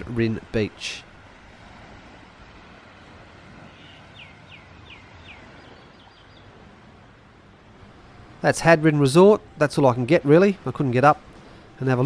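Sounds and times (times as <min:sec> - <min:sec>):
outdoor background noise: 0:00.0 - 0:12.0
bird whistling downward notes: 0:03.7 - 0:06.5.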